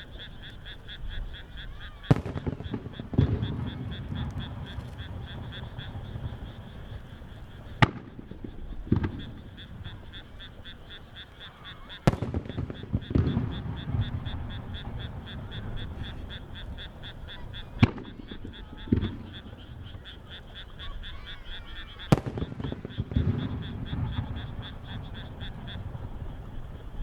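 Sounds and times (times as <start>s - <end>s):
rhythmic chirping: 0.0s - 26.9s
firework shells bursting: 2.0s - 10.8s, 12.0s - 19.8s, 22.1s - 27.0s.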